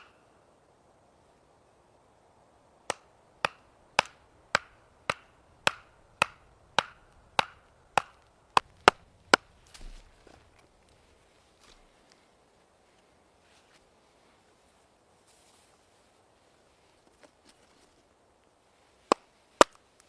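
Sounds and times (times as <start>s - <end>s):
blade chopping wood: 2.9s - 10.7s
brief rustle: 9.6s - 12.2s.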